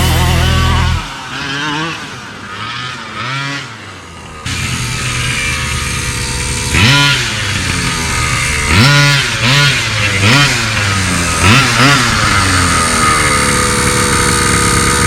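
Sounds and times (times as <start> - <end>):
small two-stroke engine revving: 0.0 - 15.0.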